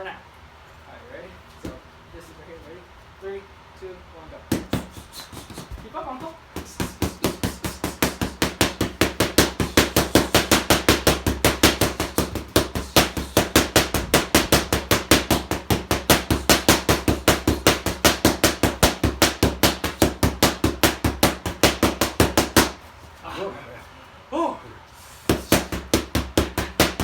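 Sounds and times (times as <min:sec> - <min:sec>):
rapid punches smacking: 0:04.5 - 0:22.8, 0:25.3 - 0:27.0.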